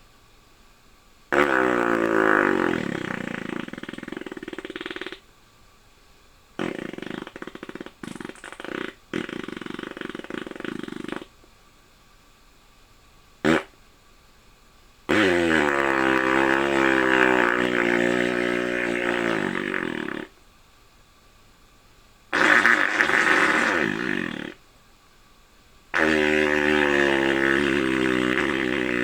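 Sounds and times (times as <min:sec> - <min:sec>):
comic fart-like noises: 0:01.3 - 0:05.2, 0:06.6 - 0:11.4, 0:13.4 - 0:13.8, 0:15.1 - 0:20.4, 0:22.3 - 0:24.6, 0:25.9 - 0:29.0.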